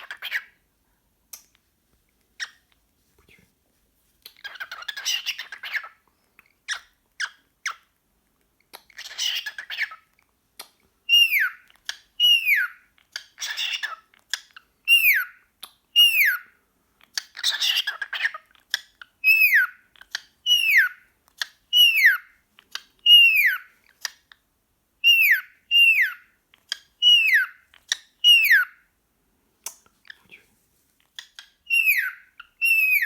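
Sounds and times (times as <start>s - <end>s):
cockatiel chattering: 4.3s - 6.0s, 8.8s - 10.0s, 11.1s - 15.3s, 17.1s - 24.2s, 25.0s - 28.8s, 31.1s - 33.0s.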